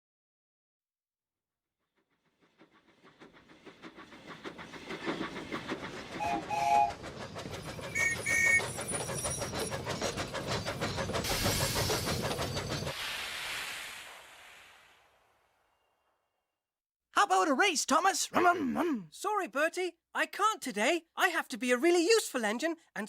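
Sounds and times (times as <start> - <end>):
steam locomotive chuffing: 1.9 - 14.4
train whistle toots: 6.2 - 7.0, 8.0 - 8.6
loud hiss of steam: 11.2 - 15.3.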